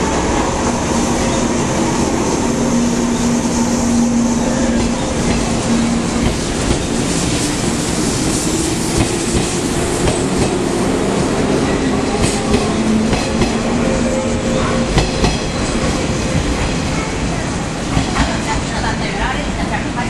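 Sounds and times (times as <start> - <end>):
electric train running hum: 0.0 - 20.0
train wheels clacking over rail joints: 2.7 - 10.6.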